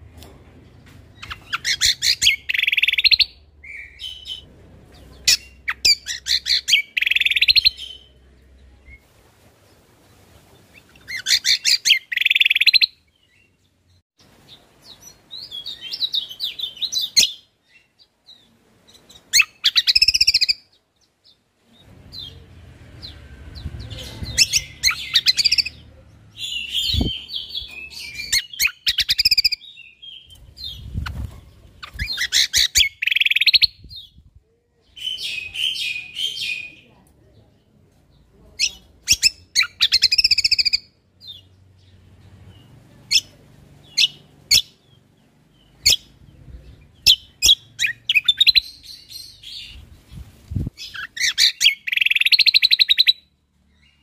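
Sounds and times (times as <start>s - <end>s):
bird chirps and trills: 1.1s - 9.0s, 10.7s - 34.3s, 38.6s - 54.0s
faint low rumble: 21.7s - 27.9s, 41.3s - 47.4s.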